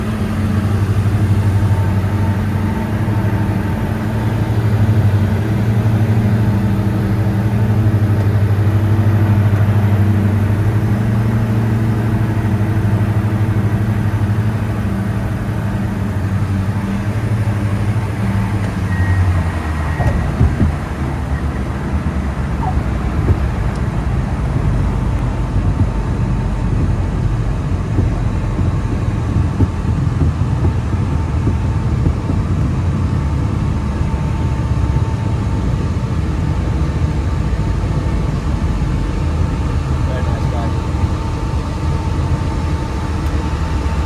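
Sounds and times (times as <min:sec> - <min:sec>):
aircraft engines droning in cabin: 0:00.0 - 0:44.0.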